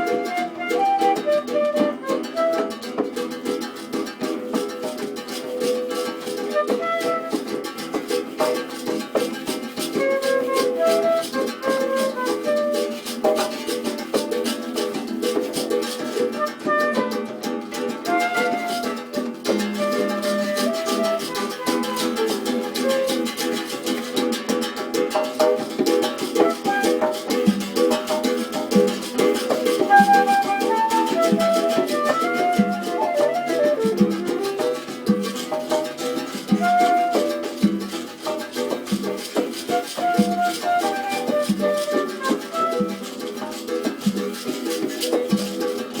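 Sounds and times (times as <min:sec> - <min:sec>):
fast strumming of guitars: 0:00.0 - 0:46.0
picked string melody: 0:16.3 - 0:23.8, 0:29.3 - 0:43.4.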